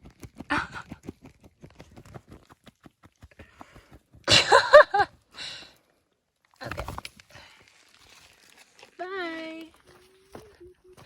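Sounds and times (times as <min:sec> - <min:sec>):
person squealing laugh: 0:04.3 - 0:05.0.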